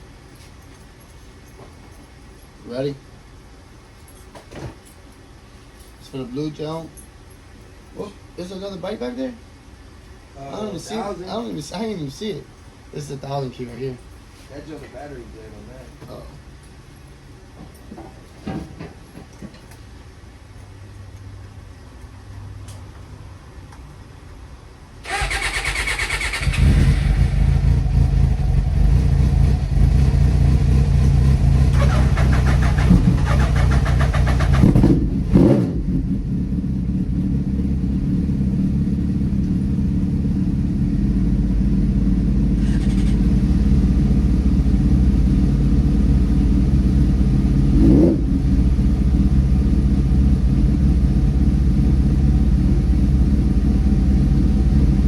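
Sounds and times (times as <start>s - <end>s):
motorcycle engine starting and idling: 25.0s - 55.0s
motorcycle throttle blips: 25.1s - 52.2s.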